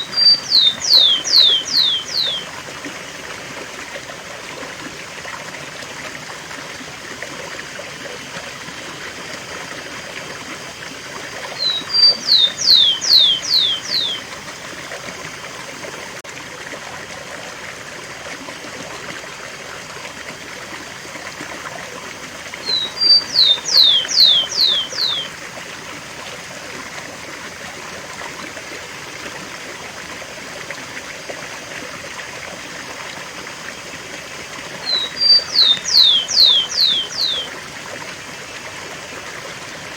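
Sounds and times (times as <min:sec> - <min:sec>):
sparrow singing whistles: 0:00.0 - 0:02.5, 0:11.6 - 0:14.2, 0:22.6 - 0:25.3, 0:34.8 - 0:37.5
rushing stream water: 0:00.0 - 0:39.9.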